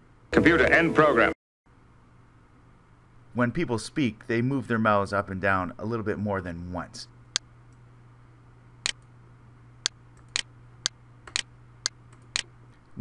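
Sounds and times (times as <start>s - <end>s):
computer mouse clicking: 11.3s - 12.5s.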